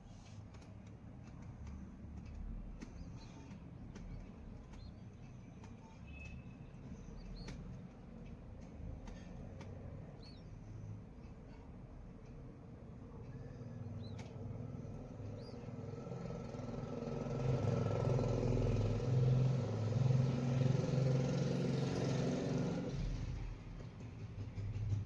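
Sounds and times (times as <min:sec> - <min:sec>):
vehicle engine running: 0:00.4 - 0:06.0, 0:14.0 - 0:25.0.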